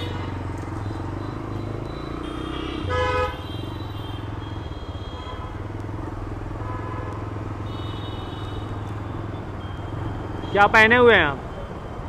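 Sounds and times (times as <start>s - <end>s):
faint vehicle horns: 2.0s - 5.7s, 6.6s - 8.8s.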